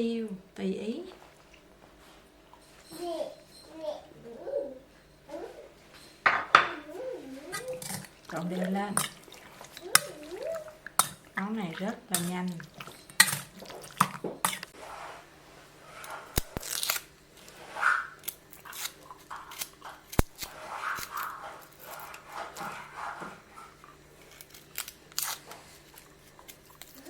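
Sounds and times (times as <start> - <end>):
wet squishing of meat by hand: 7.2 - 14.8.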